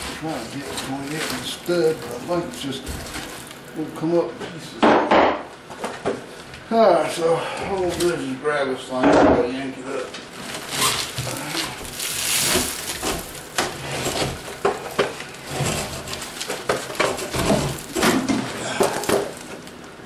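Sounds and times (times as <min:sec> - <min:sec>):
board scraping rasp: 0:00.0 - 0:03.4, 0:12.0 - 0:18.0
wooden board cracking and creaking: 0:10.4 - 0:19.8.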